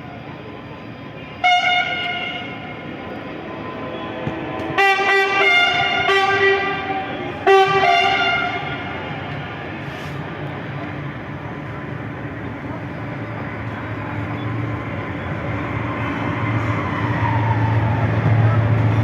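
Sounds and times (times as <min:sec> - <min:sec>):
passing train rumble: 0:00.0 - 0:19.0
locomotive air horn blasts: 0:01.4 - 0:03.0, 0:04.0 - 0:09.2.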